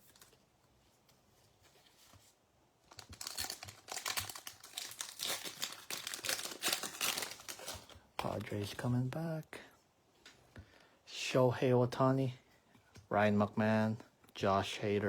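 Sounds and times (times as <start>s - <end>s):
foil wrapper tearing and crinkling: 2.9s - 8.0s.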